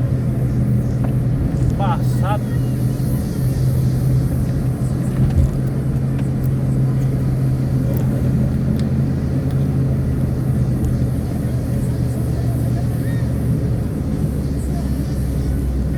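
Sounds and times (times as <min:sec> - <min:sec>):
car engine and road noise: 0:00.0 - 0:15.9
short thump: 0:05.2 - 0:05.7.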